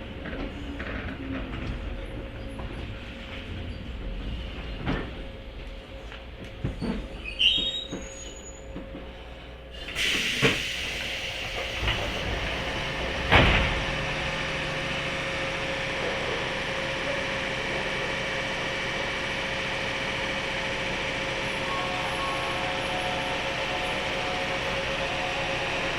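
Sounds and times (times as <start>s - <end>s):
train air hiss: 9.1s - 12.9s
loud thump: 13.1s - 14.0s.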